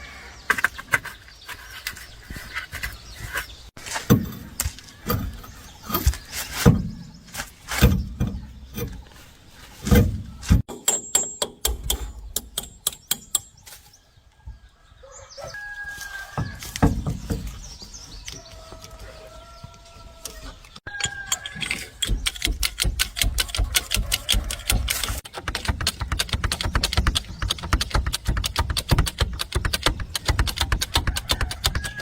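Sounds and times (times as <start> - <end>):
sharp knocks and clicks: 9.8 - 13.5, 20.9 - 32.0
rapid ticks: 22.0 - 32.0.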